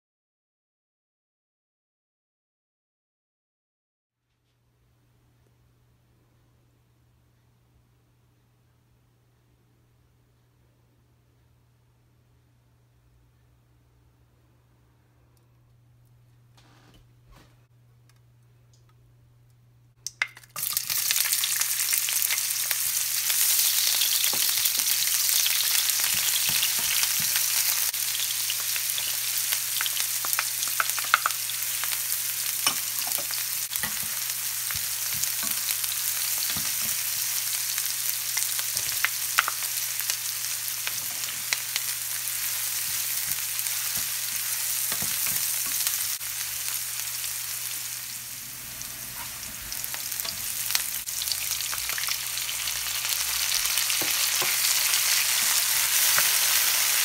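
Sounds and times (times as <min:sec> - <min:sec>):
onion sizzling in hot oil: 0:20.1 - 0:57.0
wooden spoon scraping a pan: 0:48.7 - 0:50.8.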